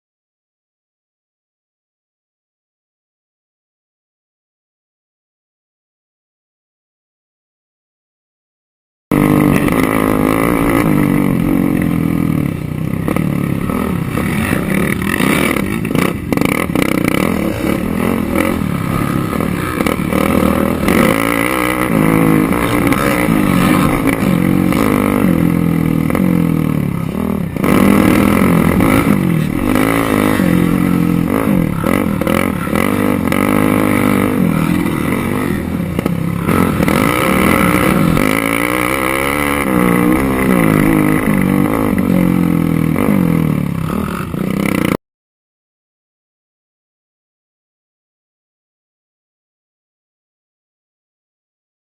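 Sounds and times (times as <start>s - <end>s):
quad bike engines revving: 9.1s - 45.0s.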